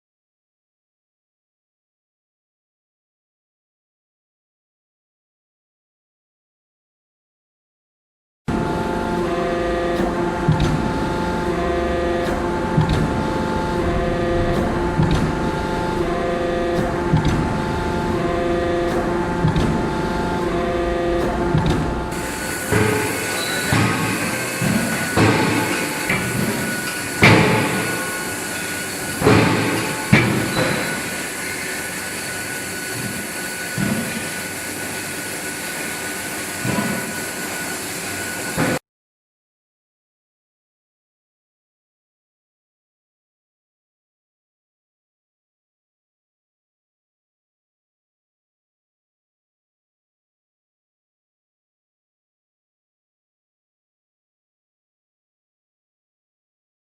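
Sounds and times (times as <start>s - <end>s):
hydraulic hum: 8.5s - 38.8s
machine high whine: 8.5s - 38.8s
forging hammer thuds: 10.0s - 31.2s
soft low thuds: 12.7s - 20.6s, 21.2s - 22.2s.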